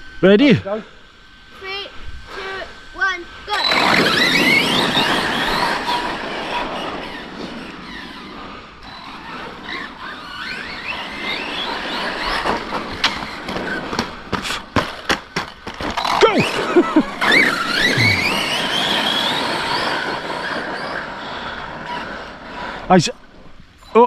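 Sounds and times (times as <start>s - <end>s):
electric motors whining: 1.1s - 24.0s
sharp knocks and clatters: 12.4s - 16.0s.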